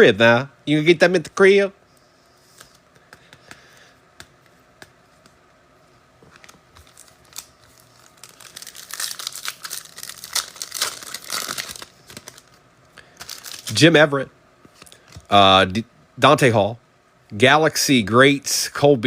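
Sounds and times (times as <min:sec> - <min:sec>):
foil wrapper tearing and crinkling: 0:06.7 - 0:12.6, 0:13.2 - 0:13.8.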